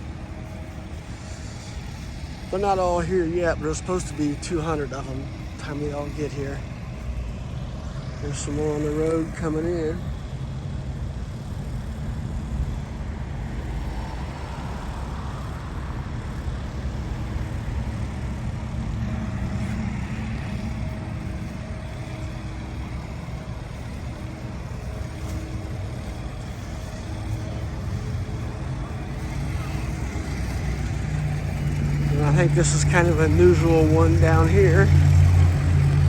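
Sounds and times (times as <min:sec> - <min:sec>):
car engines rumbling: 0:00.0 - 0:36.0.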